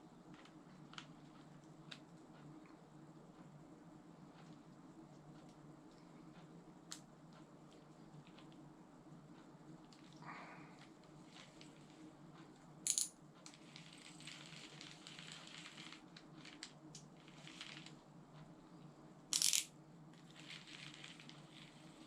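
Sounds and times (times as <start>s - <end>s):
steady low hum: 0.0s - 22.0s
fishing reel clicking and rustling: 12.9s - 17.9s, 20.4s - 22.0s.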